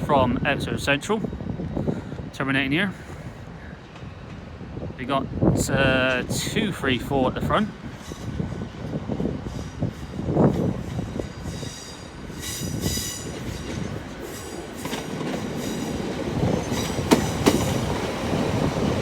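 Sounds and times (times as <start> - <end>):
train pulling in: 0.0 - 19.0
wheels clicking over rail joints: 13.3 - 19.0.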